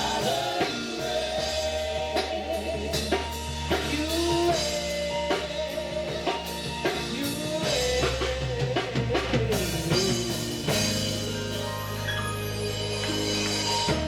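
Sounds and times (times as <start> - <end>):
bass: 0.0 - 14.0
drum kit: 0.0 - 14.0
keyboard chords: 0.0 - 14.0
wavering lead melody: 10.0 - 14.0.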